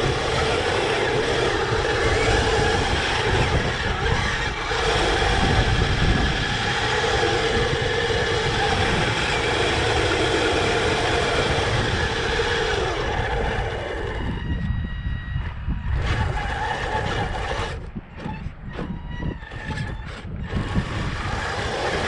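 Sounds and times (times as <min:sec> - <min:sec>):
electric motor and gear whine: 0:00.0 - 0:22.0
tracks clattering and rumbling: 0:15.3 - 0:22.0.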